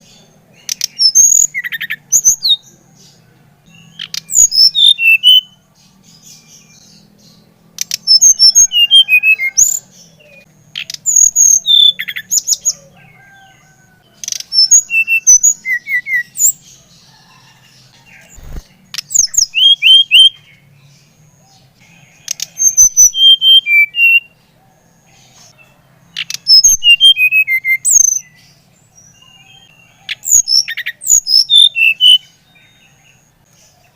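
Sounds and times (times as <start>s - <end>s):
flycatcher whistled song: 3.8s - 5.6s, 14.2s - 16.6s, 18.2s - 20.5s, 22.3s - 24.3s, 26.2s - 28.4s, 30.1s - 32.3s.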